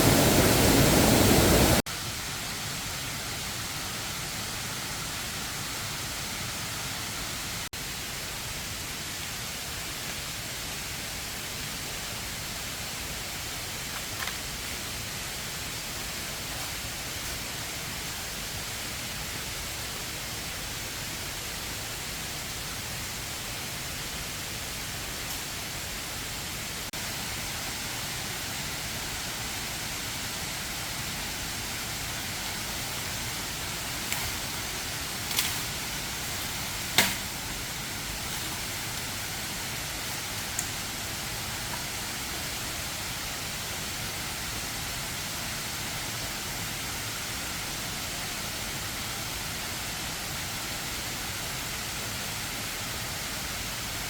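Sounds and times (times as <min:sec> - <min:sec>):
waterfall rushing: 0:00.0 - 0:07.6, 0:26.8 - 0:50.4.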